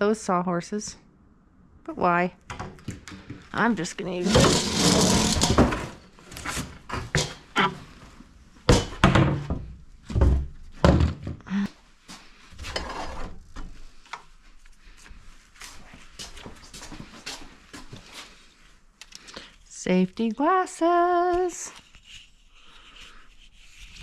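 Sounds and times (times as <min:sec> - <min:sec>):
boards and tools thunking: 0:04.2 - 0:07.9, 0:08.7 - 0:11.5.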